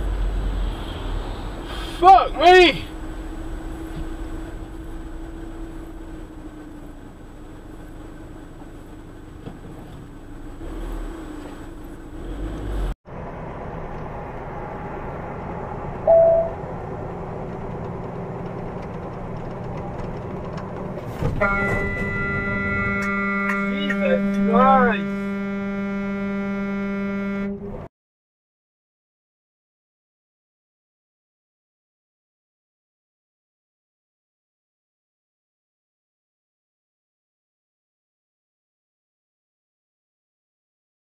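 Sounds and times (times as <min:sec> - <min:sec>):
car engine and road noise: 0:00.0 - 0:27.9
truck cab drone at highway speed: 0:00.0 - 0:27.9
short loud beep: 0:16.0 - 0:16.6.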